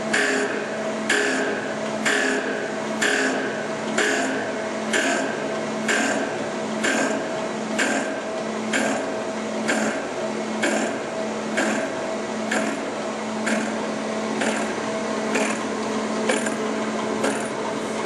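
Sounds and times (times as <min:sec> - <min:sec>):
drill grinder motor hum: 0:16.3 - 0:16.6.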